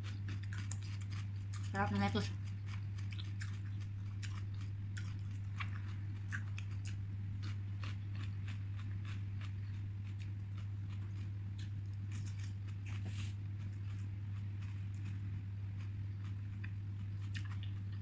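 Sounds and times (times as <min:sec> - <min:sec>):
chewing wet clicks and crunches: 0:00.0 - 0:18.0
steady low hum: 0:00.0 - 0:18.0.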